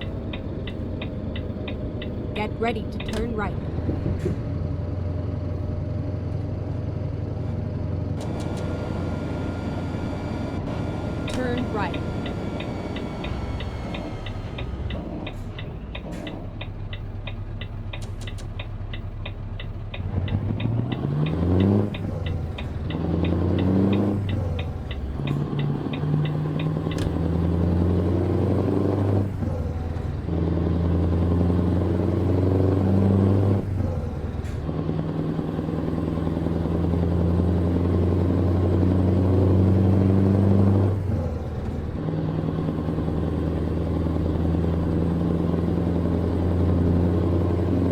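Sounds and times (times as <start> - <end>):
turn signal ticking: 0.0 - 3.7, 10.9 - 34.6
diesel truck engine: 0.0 - 47.9.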